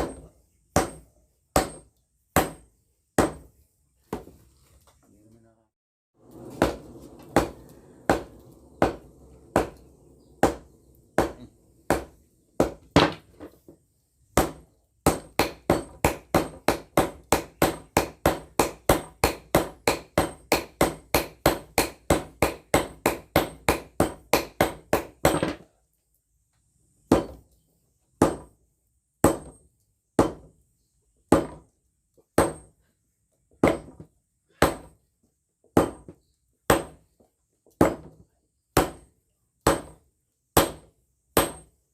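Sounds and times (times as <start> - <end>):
hammer striking steel on anvil: 6.5 - 13.2, 41.4 - 41.7.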